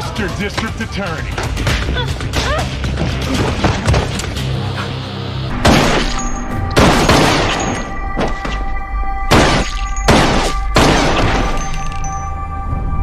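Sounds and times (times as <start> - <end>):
heavy impact hits: 5.5 - 8.4.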